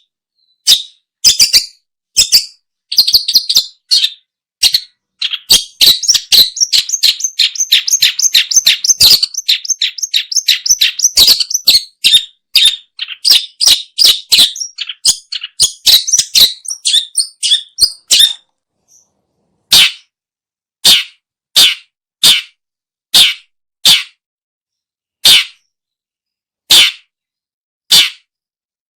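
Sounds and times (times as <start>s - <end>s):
shrike chattering calls: 5.2s - 18.4s.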